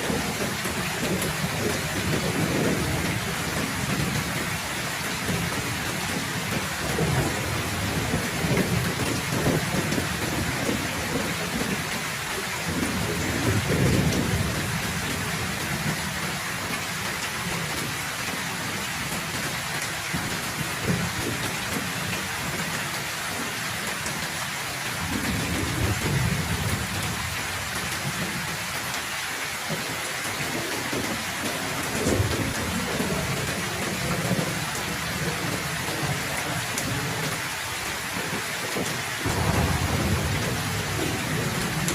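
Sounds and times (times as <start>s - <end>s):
heavy rain pouring: 0.0s - 41.9s
low rolling thunder: 0.1s - 16.3s, 25.0s - 28.3s, 30.6s - 37.5s, 38.1s - 41.9s.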